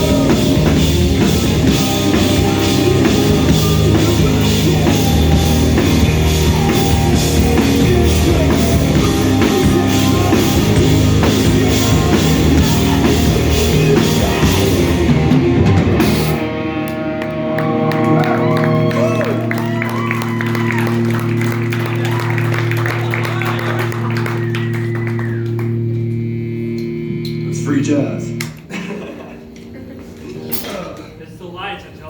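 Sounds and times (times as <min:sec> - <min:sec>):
drum kit: 0:00.0 - 0:18.3
live rock band playing: 0:00.0 - 0:28.7
held guitar chord ringing: 0:25.1 - 0:31.3.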